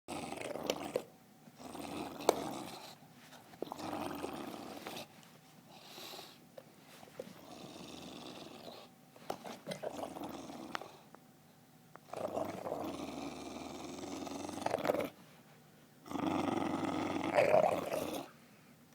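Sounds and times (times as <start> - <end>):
dog growling: 0.1 - 3.0, 3.7 - 5.1, 7.4 - 8.9, 9.6 - 11.1, 12.1 - 15.2, 16.0 - 18.3.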